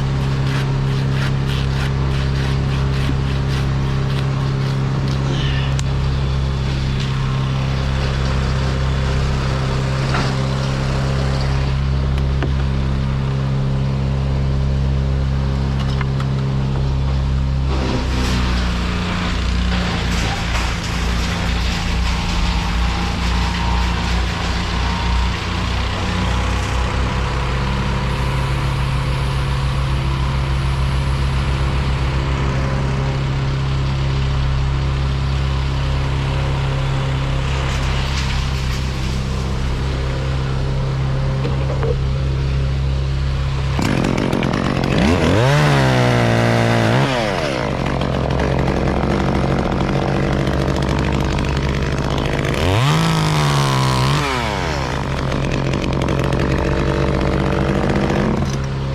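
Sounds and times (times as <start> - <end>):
chainsaw running and revving: 0.0 - 5.3, 17.6 - 42.0, 42.8 - 58.9.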